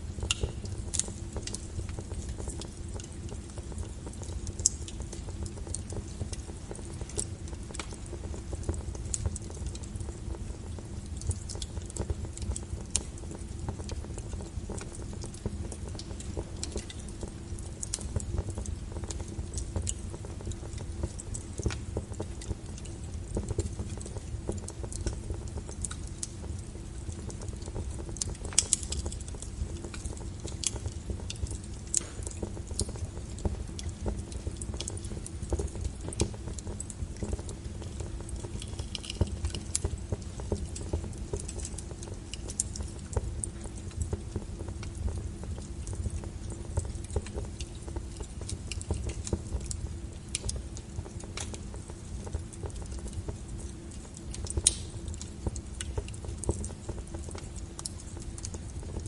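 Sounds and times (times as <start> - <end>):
logs crackling and popping: 0.0 - 59.0
low rumble of fire: 0.0 - 59.0.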